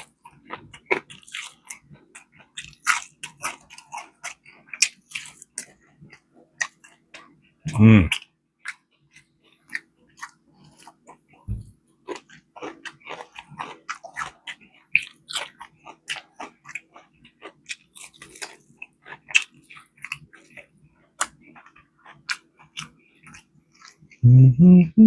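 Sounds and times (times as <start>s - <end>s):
person chewing chicken wings: 0.0s - 24.5s.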